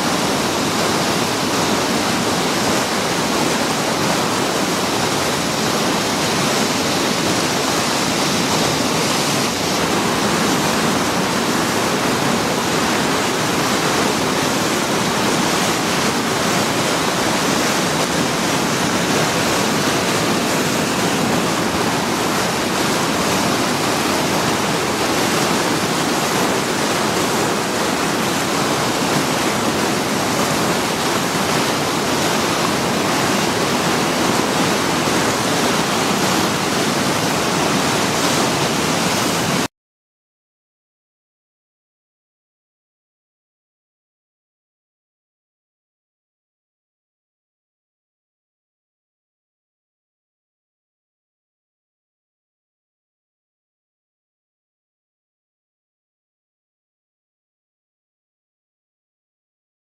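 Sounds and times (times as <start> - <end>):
whitewater river rapids: 0.0 - 39.7.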